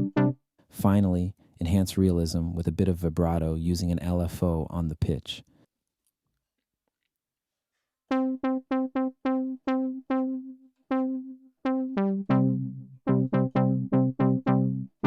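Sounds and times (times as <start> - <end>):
synth brass notes: 8.1 - 15.0.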